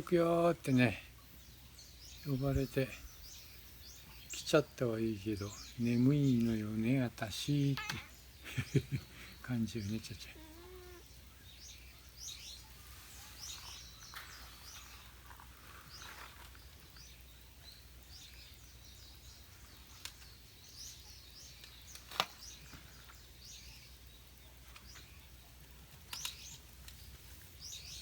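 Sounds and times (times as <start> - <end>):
small birds chirping: 0.0 - 28.0
sharp clicks: 26.1 - 27.0.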